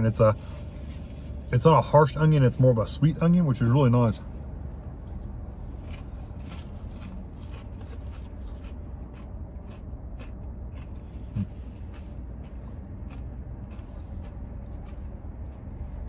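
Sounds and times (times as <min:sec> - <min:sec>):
low rumble: 0:00.0 - 0:16.0
short low hum: 0:00.0 - 0:16.0
crunchy chewing: 0:04.7 - 0:16.0.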